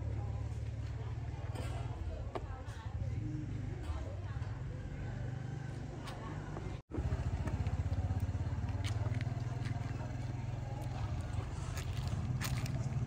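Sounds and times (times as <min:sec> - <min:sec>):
small motorbike engine running: 0:03.1 - 0:13.0.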